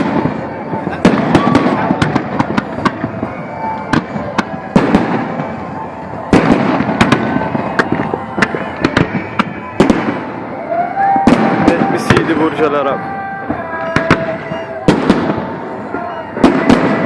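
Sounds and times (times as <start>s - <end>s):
faint firework whistles: 0.0s - 12.7s, 13.5s - 17.0s
fireworks bursts and crackles: 0.0s - 17.0s.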